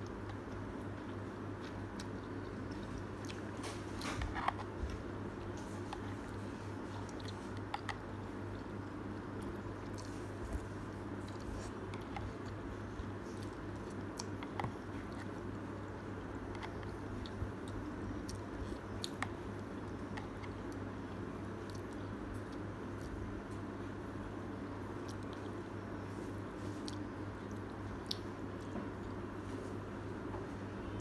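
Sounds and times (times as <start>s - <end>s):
person chewing noodles: 0.0s - 23.3s
steady low hum: 0.0s - 31.0s.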